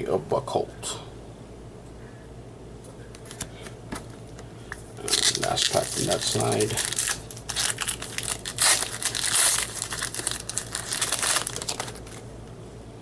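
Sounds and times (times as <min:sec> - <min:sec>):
wrapper being torn and crinkled: 0:05.0 - 0:12.3.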